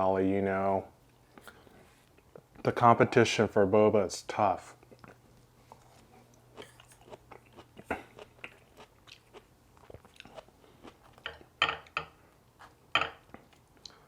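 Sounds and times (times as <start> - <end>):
crunchy mouth sounds and clicks: 4.8 - 11.4
person chewing and biting: 4.9 - 11.5.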